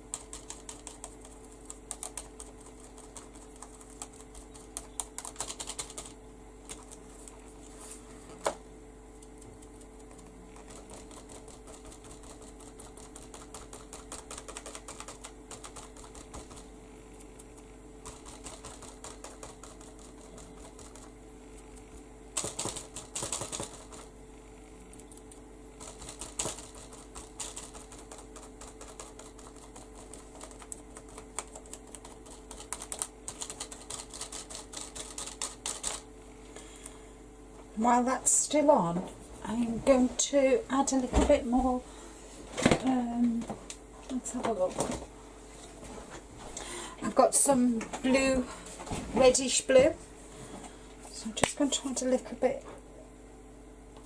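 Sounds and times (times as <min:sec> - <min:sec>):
steady hum: 0:00.0 - 0:54.0
sponge dabbing on paper: 0:09.6 - 0:16.8, 0:17.4 - 0:21.7, 0:25.8 - 0:36.0.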